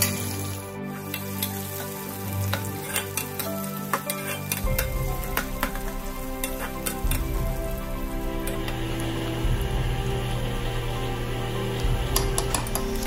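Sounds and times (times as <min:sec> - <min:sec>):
onions sizzling in hot oil: 0:00.0 - 0:13.0
spatula scraping a steel pan: 0:01.1 - 0:05.8.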